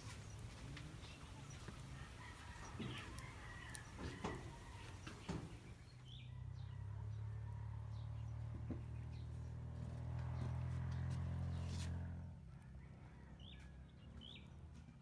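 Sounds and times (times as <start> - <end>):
chickens clucking: 0.3 - 5.6.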